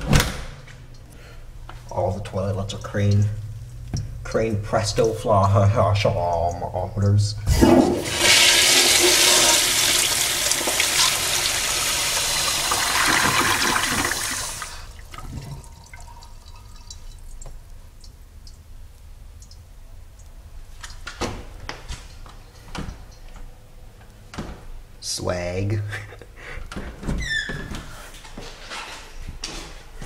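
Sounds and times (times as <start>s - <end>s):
toilet flushing: 7.4s - 17.0s.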